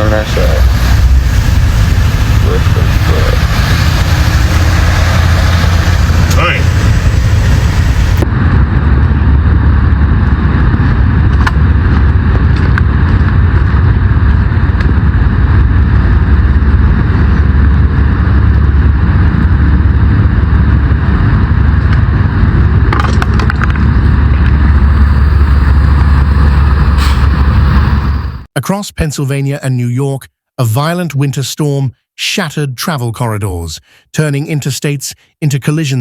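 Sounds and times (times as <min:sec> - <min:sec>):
vehicle engine and road noise: 0:00.0 - 0:28.5.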